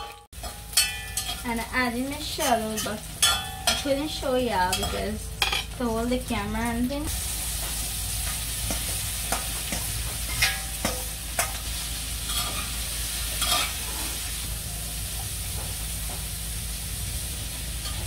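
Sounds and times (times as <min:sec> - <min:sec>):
metal spoon clinking and scraping: 0:00.0 - 0:01.6, 0:02.4 - 0:04.0, 0:08.7 - 0:11.7, 0:12.3 - 0:12.8, 0:13.4 - 0:14.2
peas sizzling in oil: 0:00.0 - 0:18.0.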